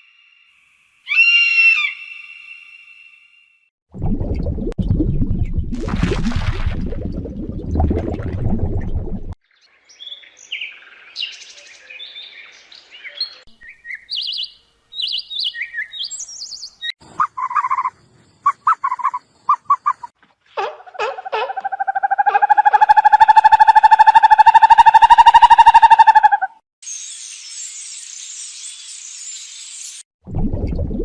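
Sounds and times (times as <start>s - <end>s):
low rumbling noise: 4.0s - 9.4s
birds chirping: 9.9s - 20.1s
short repeated lower bird calls: 13.1s - 20.1s.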